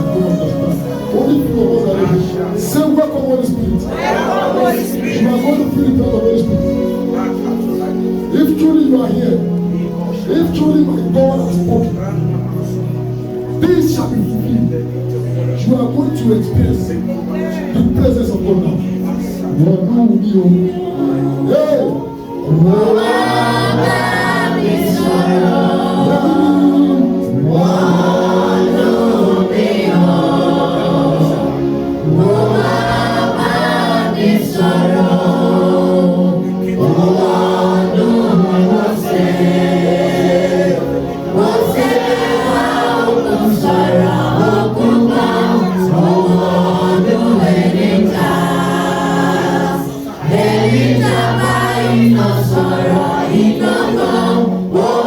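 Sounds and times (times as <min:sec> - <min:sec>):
choir and congregation singing: 0:00.0 - 0:55.0
sustained accompanying tones: 0:00.0 - 0:55.0.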